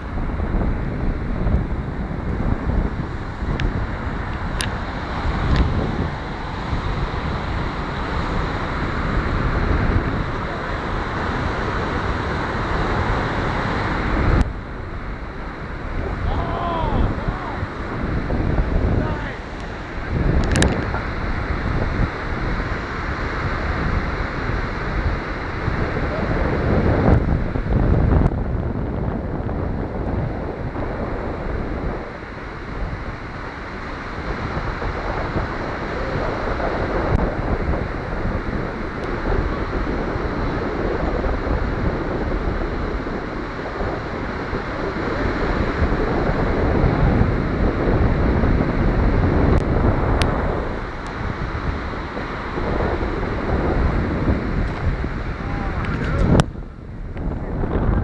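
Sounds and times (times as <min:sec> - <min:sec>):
ocean surf: 0:00.0 - 0:58.0
wind gusting across microphone: 0:00.0 - 0:58.0.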